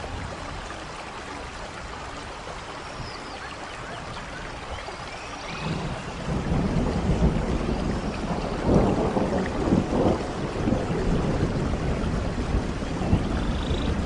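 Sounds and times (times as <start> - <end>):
rain falling: 0.0 - 14.0
rolling thunder rumble: 5.5 - 14.0.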